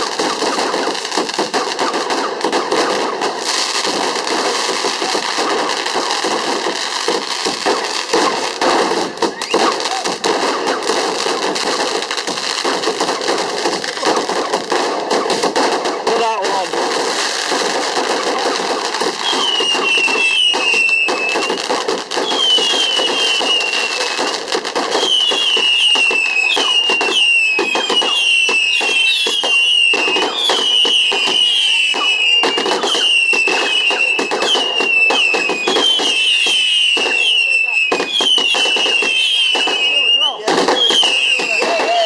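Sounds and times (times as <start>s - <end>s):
falling firework whistles: 0.0s - 16.1s, 16.9s - 42.0s
fireworks crackling bangs: 0.0s - 42.0s.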